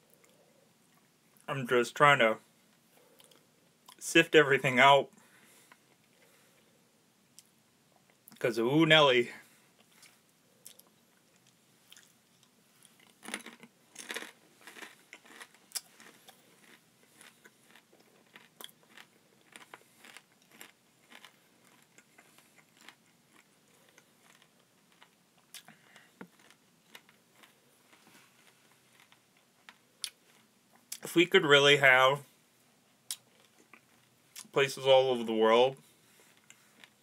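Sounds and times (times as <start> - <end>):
crunching and chewing beetle: 9.8 - 31.1.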